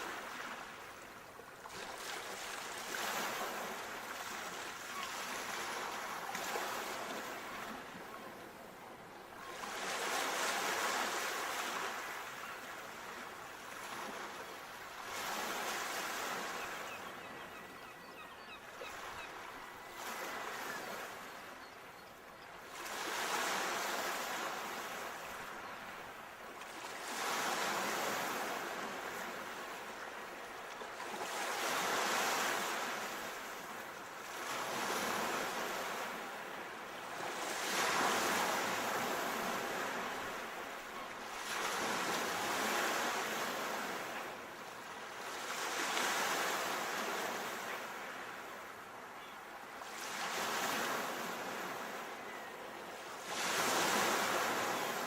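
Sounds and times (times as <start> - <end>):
sea waves breaking on shore: 0.0 - 55.0.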